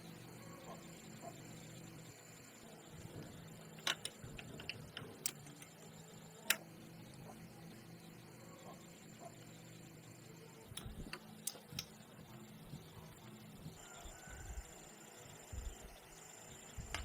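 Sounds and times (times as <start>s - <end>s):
faint steady hum: 0.0s - 17.0s
sharp clicks and taps: 3.8s - 5.7s.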